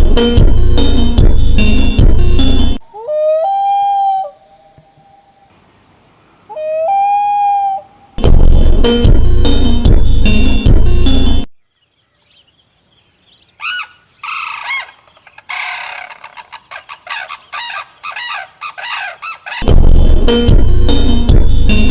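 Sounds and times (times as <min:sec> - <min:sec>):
electronic music: 0:00.0 - 0:02.8, 0:08.2 - 0:11.5, 0:19.6 - 0:21.9
bird calling: 0:02.8 - 0:05.5, 0:06.3 - 0:08.2, 0:11.8 - 0:19.7.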